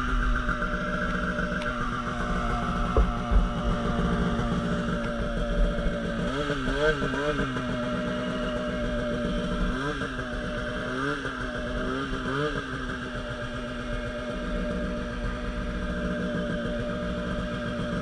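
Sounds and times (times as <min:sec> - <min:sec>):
snowmobile two-stroke engine: 0:00.0 - 0:18.0.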